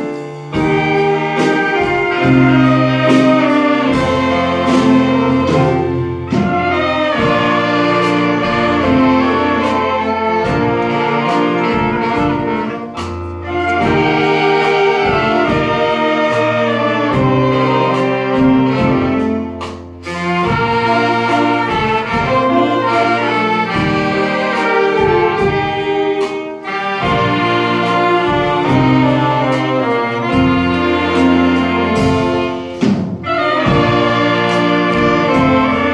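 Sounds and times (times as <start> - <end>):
saxophone ensemble playing: 0.0 - 35.9.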